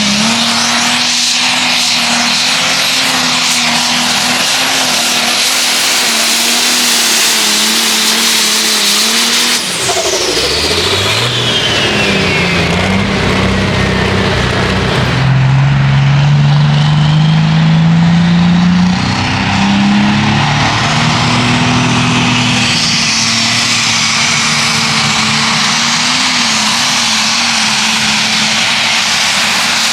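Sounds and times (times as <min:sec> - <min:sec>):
high whine falling in pitch: 0:00.0 - 0:29.9
tractor engine running hard: 0:00.0 - 0:29.9.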